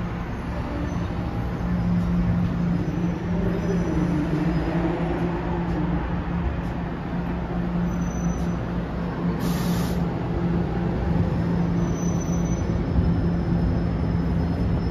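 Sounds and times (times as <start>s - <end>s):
train equipment hum and rumble: 0.0s - 14.9s
short high hiss: 9.4s - 10.0s.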